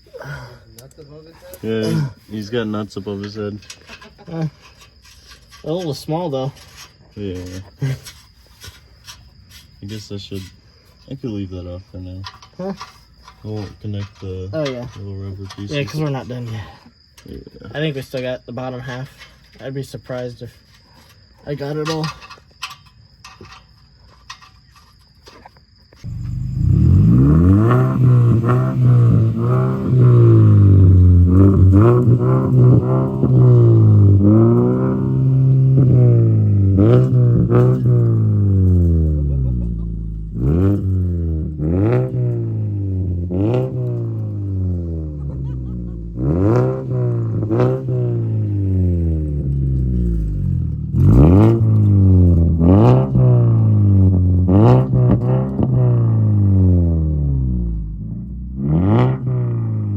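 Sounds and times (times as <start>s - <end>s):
car engine revving: 26.1s - 59.9s.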